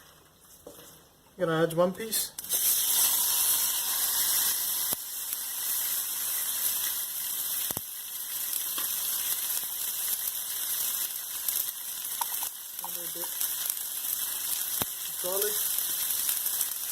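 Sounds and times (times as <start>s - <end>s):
steak sizzling in a hot pan: 2.4s - 16.9s.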